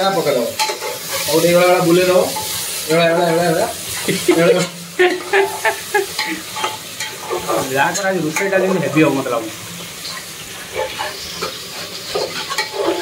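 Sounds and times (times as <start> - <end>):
onions sizzling in oil: 0.0 - 13.0
metal spoon scraping pot: 10.8 - 13.0.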